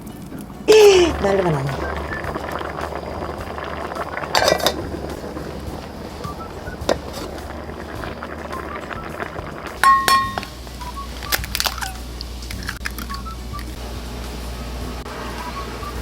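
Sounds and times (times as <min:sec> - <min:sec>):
metal utensils clinking on a pan: 0:04.3 - 0:04.8, 0:06.9 - 0:07.4, 0:09.8 - 0:10.5
loud ringing clang: 0:09.8 - 0:10.5.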